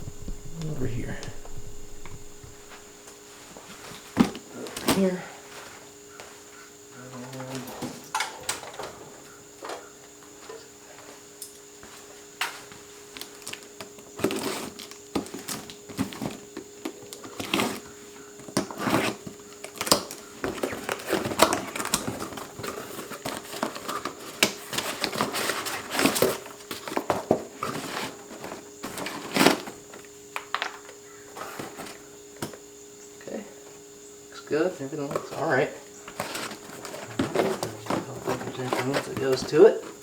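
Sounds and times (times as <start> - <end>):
faint steady hum: 0.0 - 40.0
packaging crinkling and rustling: 12.5 - 32.6, 35.1 - 40.0.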